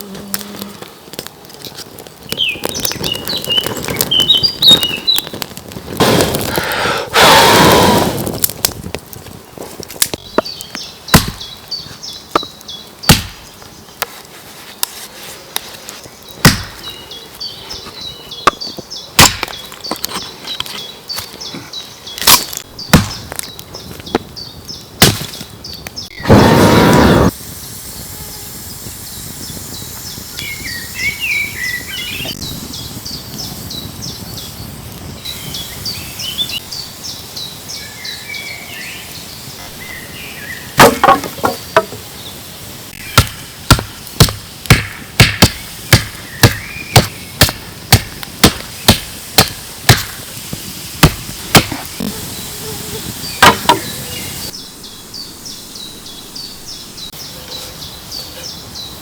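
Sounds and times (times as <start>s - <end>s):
birds chirping: 2.2s - 5.4s, 10.1s - 14.0s, 15.8s - 27.3s, 29.0s - 59.0s
tool knocking on wood: 53.4s - 53.9s.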